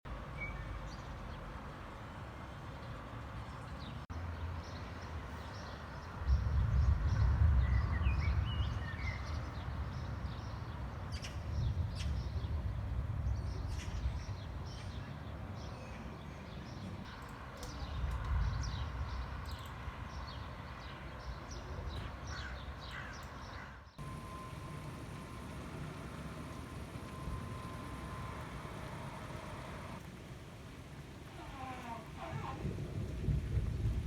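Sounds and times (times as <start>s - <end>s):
small birds chirping: 13.4s - 30.0s
distant thunder rolling: 24.0s - 30.1s, 31.3s - 34.0s.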